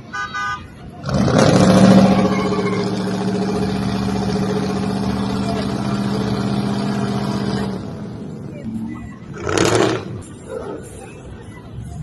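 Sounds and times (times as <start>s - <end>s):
truck engine revving: 1.0s - 8.6s, 9.2s - 11.1s.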